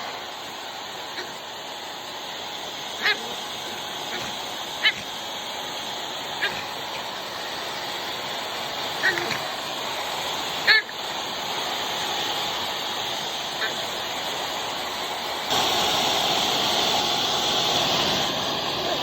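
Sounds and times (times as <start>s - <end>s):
hair dryer blowing: 0.0s - 19.0s
small dog yipping: 1.1s - 1.4s, 3.0s - 7.5s, 8.8s - 9.6s, 10.6s - 11.0s, 13.6s - 13.9s.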